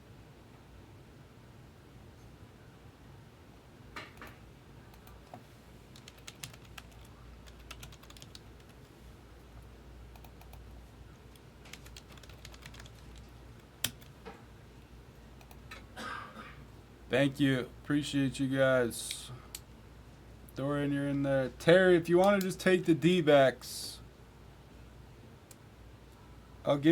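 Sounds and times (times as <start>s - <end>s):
computer keyboard typing: 5.9s - 8.8s, 10.1s - 10.6s, 11.3s - 14.2s.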